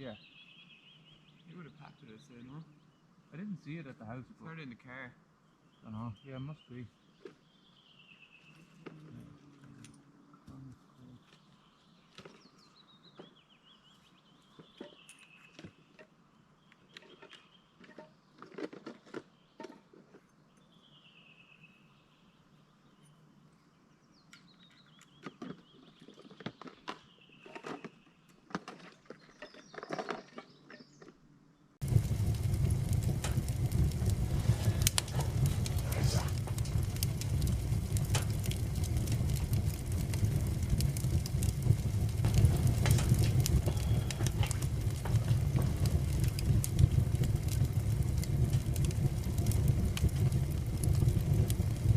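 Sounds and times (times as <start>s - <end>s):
dense crackling: 31.8s - 51.9s
birds whistling: 42.3s - 45.8s.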